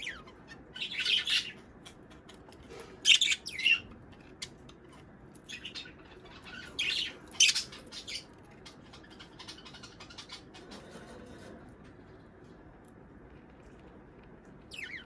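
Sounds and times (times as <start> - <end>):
parrots chirping and squawking: 0.0 - 11.7, 14.7 - 15.0.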